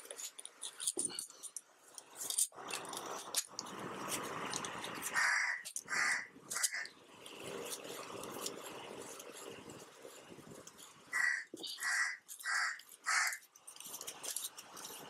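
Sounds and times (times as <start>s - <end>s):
metal parts clinking on a bench: 0.0s - 3.6s
harsh bird calls: 5.1s - 7.0s, 11.1s - 13.4s.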